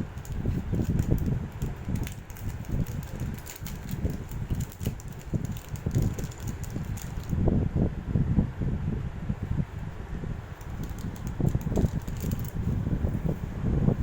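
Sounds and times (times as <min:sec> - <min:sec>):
package handling bumps and rustling: 0:00.0 - 0:07.4, 0:10.6 - 0:12.6.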